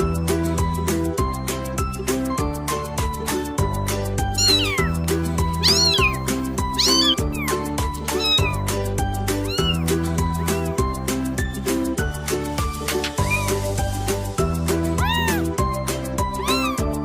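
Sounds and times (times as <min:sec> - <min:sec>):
cat meowing: 0:04.3 - 0:08.7, 0:09.4 - 0:10.8, 0:13.2 - 0:13.7, 0:14.9 - 0:15.6, 0:16.3 - 0:17.0.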